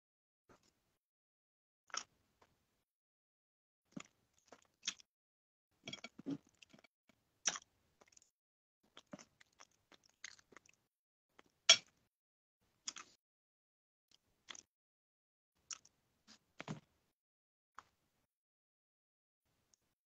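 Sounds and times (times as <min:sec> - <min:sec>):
person chewing crunchy food: 0:01.9 - 0:02.1, 0:04.0 - 0:05.1, 0:07.5 - 0:08.3, 0:08.9 - 0:11.6, 0:12.9 - 0:13.2, 0:14.4 - 0:14.7.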